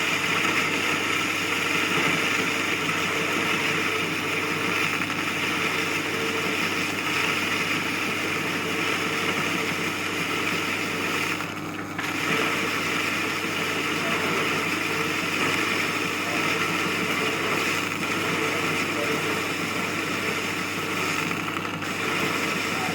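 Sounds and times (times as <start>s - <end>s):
metal lathe machining: 0.0s - 22.9s.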